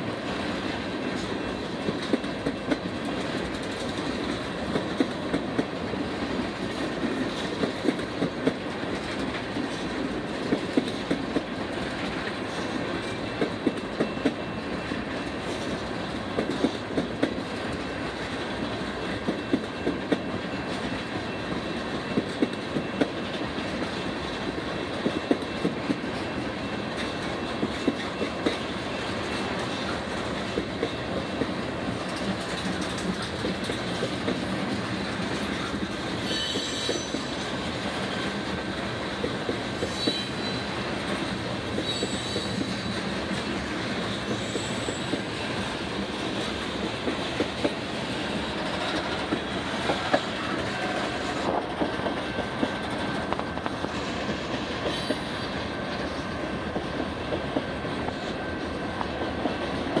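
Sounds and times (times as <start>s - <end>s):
freight train wheels rumbling: 0.0s - 60.0s
high-pitched wheel squeals: 36.2s - 37.4s, 39.8s - 40.7s, 41.8s - 42.7s, 44.3s - 45.1s.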